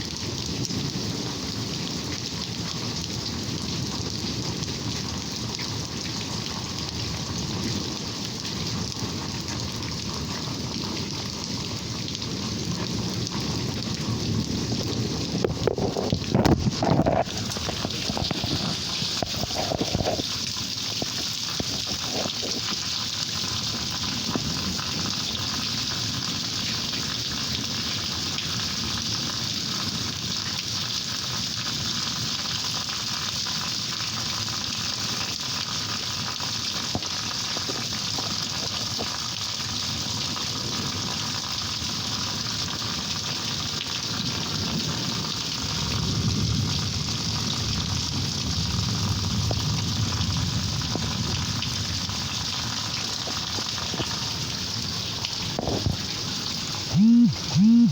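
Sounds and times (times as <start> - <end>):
steady rain falling: 0.0 - 57.9
low thunder rumble: 44.5 - 52.7.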